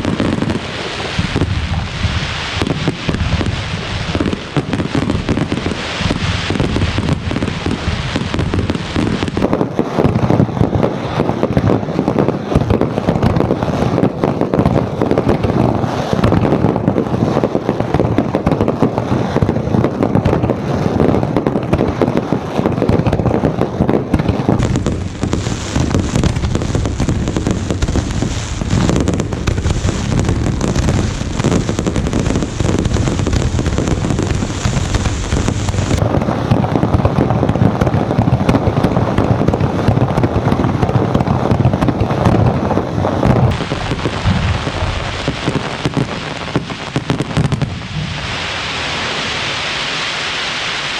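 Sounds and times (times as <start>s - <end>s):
fireworks bangs and crackling: 0.0s - 50.9s.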